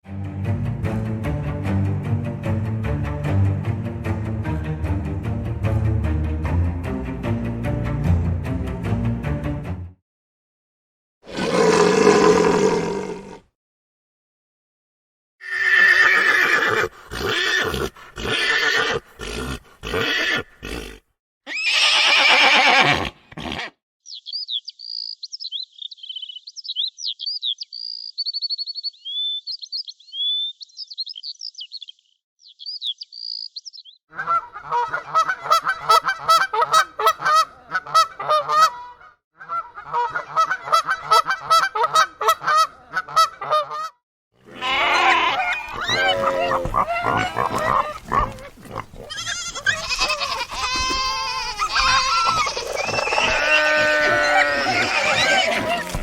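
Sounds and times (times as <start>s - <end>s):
rough animal calls: 11.3s - 13.4s, 44.4s - 56.0s
rapid pulsing animal call: 44.5s - 56.0s.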